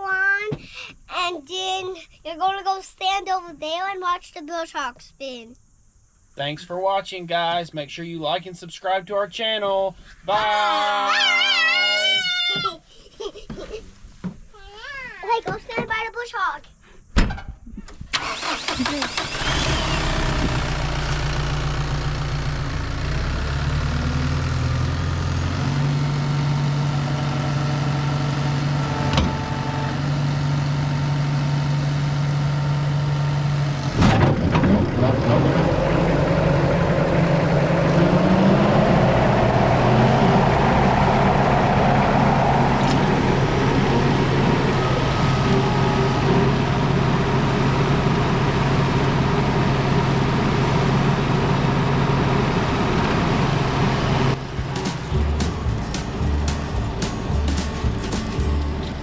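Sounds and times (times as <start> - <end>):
tractor engine running: 18.0 - 59.0
cutter blades whirring: 18.3 - 23.5
loud mechanical clunk: 33.9 - 35.0, 54.5 - 59.0.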